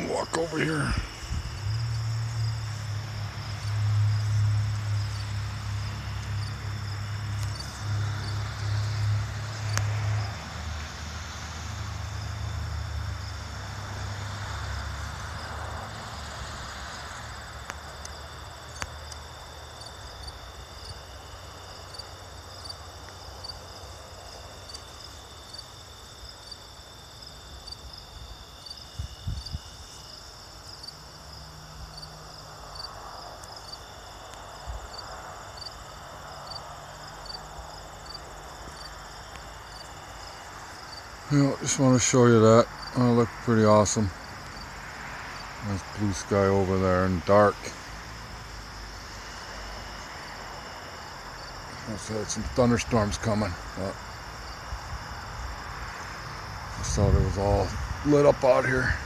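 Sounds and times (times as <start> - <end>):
low microphone rumble: 0.0 - 5.6
crickets chirping: 0.0 - 59.0.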